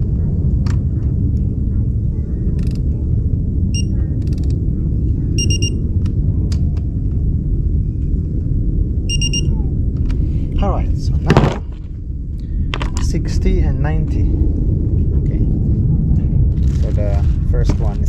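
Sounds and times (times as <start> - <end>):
low rumble: 0.0 - 18.0
short electronic beeps: 5.4 - 5.8, 9.1 - 9.5.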